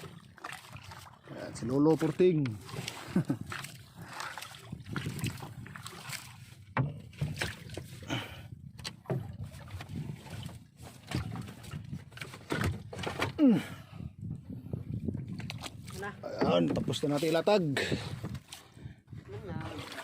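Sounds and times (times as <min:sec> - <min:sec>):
knocks and clatter on a boat: 0:00.0 - 0:20.0.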